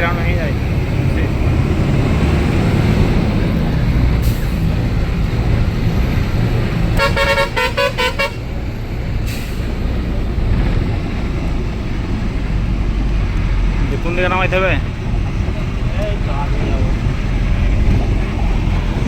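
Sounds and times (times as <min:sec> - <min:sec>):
diesel truck engine running: 0:00.0 - 0:19.0
short horn toots: 0:07.0 - 0:08.5.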